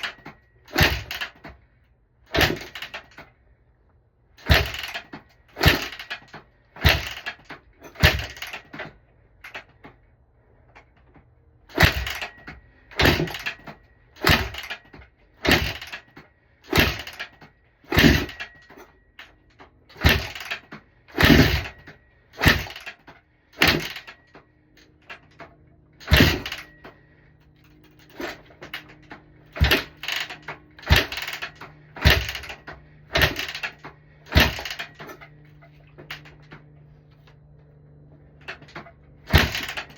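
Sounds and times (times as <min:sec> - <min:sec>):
motorcycle being kick-started: 0:00.0 - 0:01.7, 0:02.3 - 0:03.4, 0:04.4 - 0:10.0, 0:10.8 - 0:39.9.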